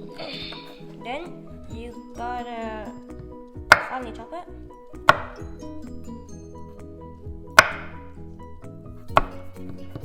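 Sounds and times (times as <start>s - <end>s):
background music: 0.0s - 10.0s
knife chopping on cutting board: 3.6s - 4.0s, 5.0s - 5.6s, 7.5s - 8.0s, 9.0s - 10.0s.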